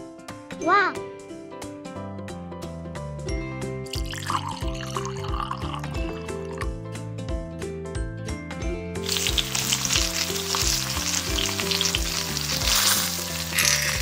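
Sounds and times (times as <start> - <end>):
background music with steady beat: 0.0 - 14.0
food sizzling in hot oil: 9.0 - 14.0.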